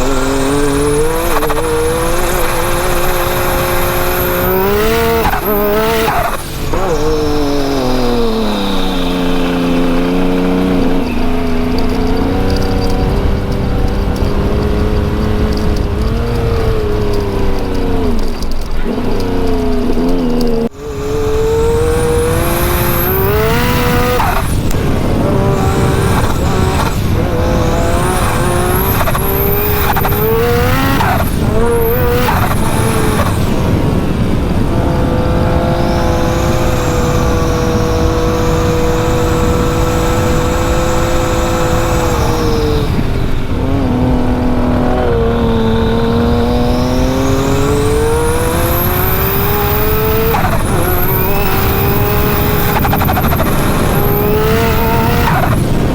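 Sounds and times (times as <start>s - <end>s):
engine revving: 0.0s - 55.9s
high turbo whine: 0.0s - 55.9s.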